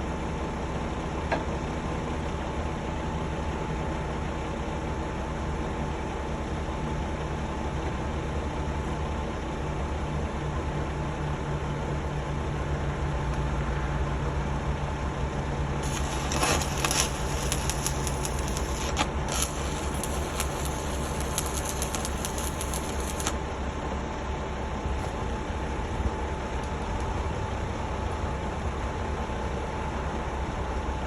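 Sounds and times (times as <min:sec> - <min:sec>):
engine idling: 0:00.1 - 0:31.0
sharp crackles and clicks: 0:15.8 - 0:23.4.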